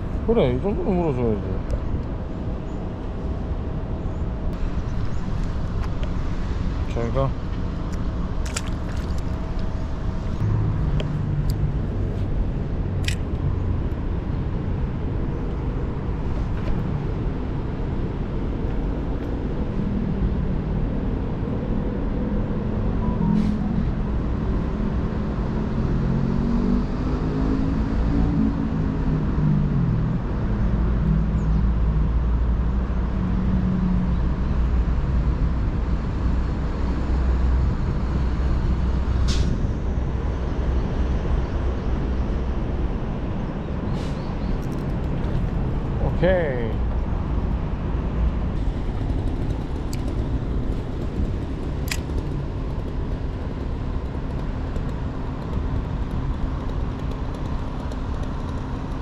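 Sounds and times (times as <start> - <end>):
road traffic rumble: 0.0 - 59.0
sharp clicks: 13.0 - 13.4.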